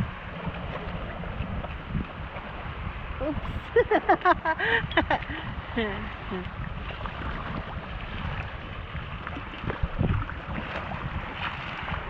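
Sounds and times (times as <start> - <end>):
wind on microphone: 0.0 - 12.0
sea swell sloshing in cave: 5.5 - 12.0.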